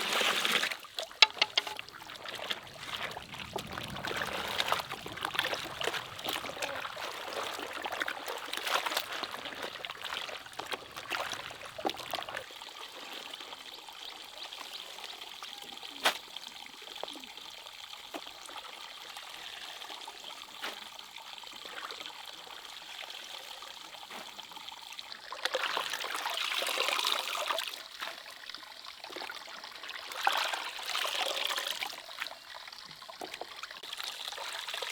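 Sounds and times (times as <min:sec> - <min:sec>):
water trickling: 0:00.7 - 0:14.3, 0:24.8 - 0:34.9
light clicks and knocks: 0:01.2 - 0:01.9.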